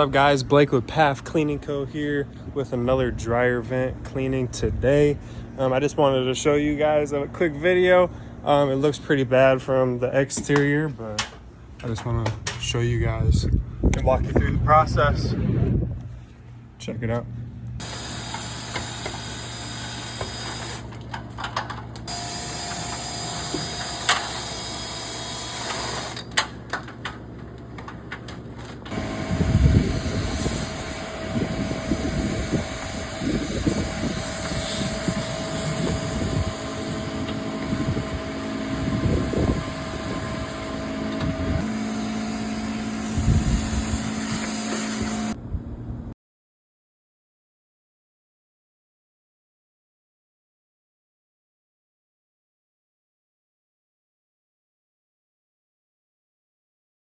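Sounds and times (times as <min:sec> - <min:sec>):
motor hum: 0:15.2 - 0:45.4.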